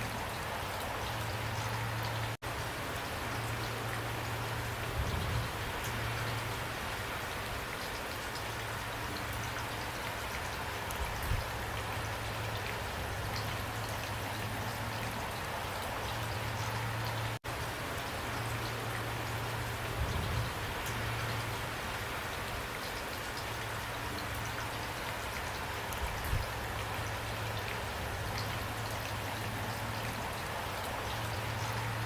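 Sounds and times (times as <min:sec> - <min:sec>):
steady rain hiss: 0:00.0 - 0:32.0
raindrops ticking: 0:22.3 - 0:32.0.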